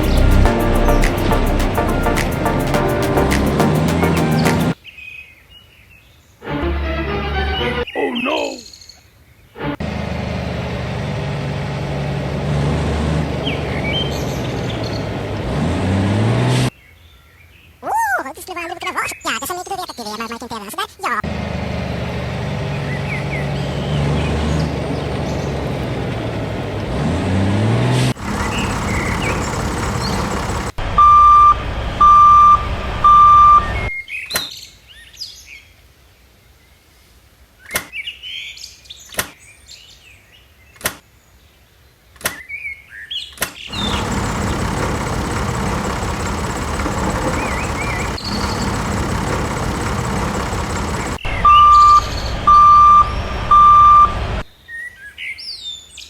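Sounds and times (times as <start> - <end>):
vehicle engine running: 0.0 - 4.8, 9.8 - 16.7, 21.3 - 33.9, 43.7 - 54.5
birds chirping: 0.0 - 5.8, 7.6 - 9.5, 13.3 - 15.4, 22.7 - 26.6, 28.2 - 30.8, 43.7 - 54.4
short loud beeps: 30.9 - 33.8, 51.2 - 54.2.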